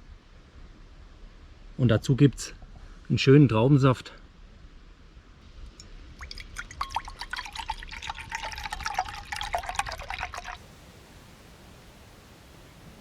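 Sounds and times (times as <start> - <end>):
juice pouring into a glass: 6.2 - 10.6.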